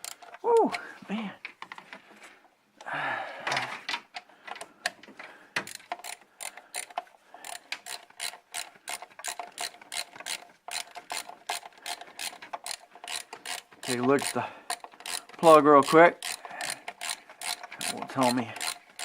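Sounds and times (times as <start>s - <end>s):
ratchet wrench clicking: 5.7s - 19.0s.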